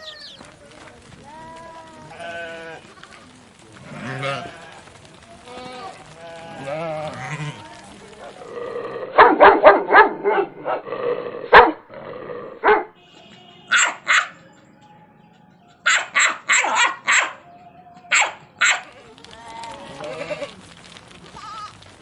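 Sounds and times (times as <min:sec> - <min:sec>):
dog barking: 0:09.1 - 0:10.8, 0:11.5 - 0:11.8, 0:12.6 - 0:13.0, 0:13.7 - 0:14.4, 0:15.8 - 0:17.5, 0:18.1 - 0:19.0.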